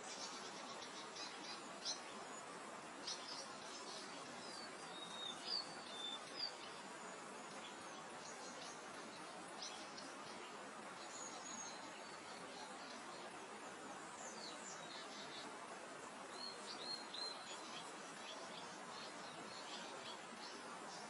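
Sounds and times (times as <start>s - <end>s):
small birds chirping: 0.0s - 21.0s
soft wind hiss: 0.0s - 21.0s.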